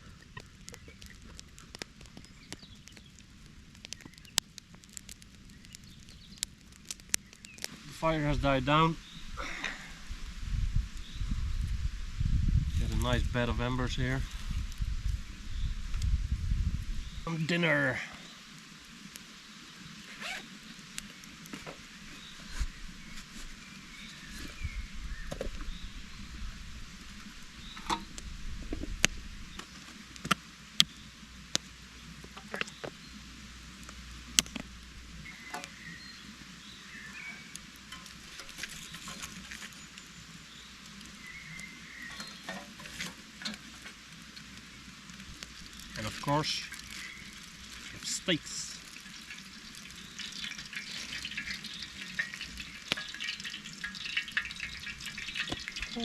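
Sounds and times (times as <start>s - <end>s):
sharp pops of fire: 0.0s - 9.8s, 26.9s - 33.0s, 33.8s - 36.1s, 36.9s - 56.0s
campfire embers crackling: 0.0s - 56.0s.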